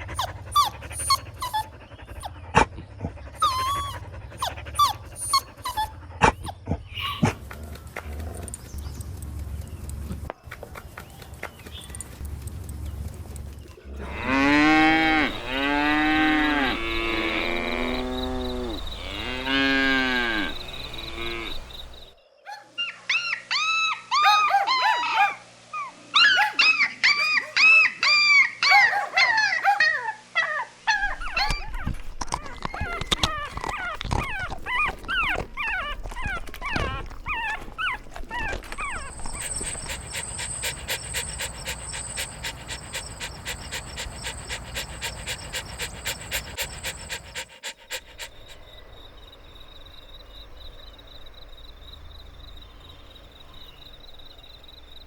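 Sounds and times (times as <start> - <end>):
puppy yelps and whimpers: 0.0 - 2.3, 3.4 - 7.4, 22.5 - 48.6
dog panting: 0.0 - 17.2, 32.4 - 48.8
dog howling: 26.2 - 48.6.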